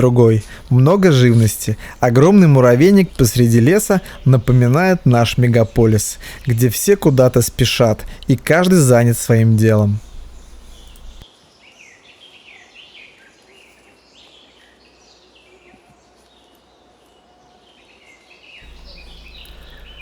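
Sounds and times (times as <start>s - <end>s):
steady background hiss: 0.0s - 13.4s, 18.6s - 20.0s
small birds chirping and whistling: 10.0s - 15.5s, 17.7s - 20.0s.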